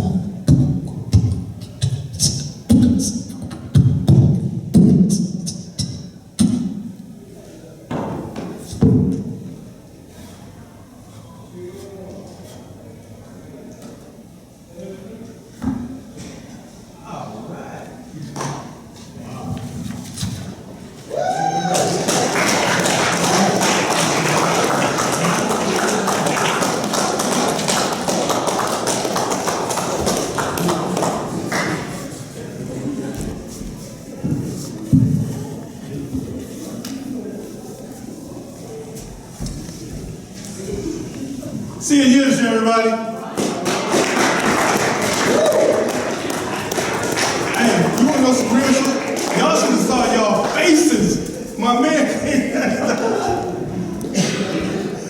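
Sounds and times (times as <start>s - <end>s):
person beatboxing: 0.0s - 6.8s
audience applauding: 21.6s - 32.2s, 43.3s - 50.6s.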